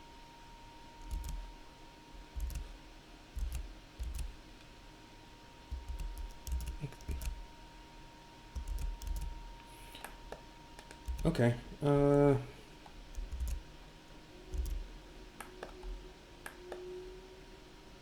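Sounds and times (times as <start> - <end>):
faint steady whine: 0.0 - 18.0
keyboard and mouse clicking: 1.0 - 1.5, 2.4 - 2.7, 3.4 - 4.3, 5.7 - 7.4, 8.6 - 9.4, 10.8 - 11.4, 13.1 - 13.6, 14.5 - 14.8.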